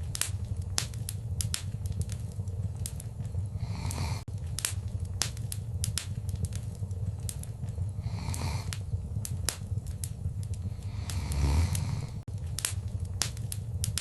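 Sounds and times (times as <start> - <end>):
low steady rumble: 0.0 - 14.0
wood fire crackling: 0.0 - 14.0.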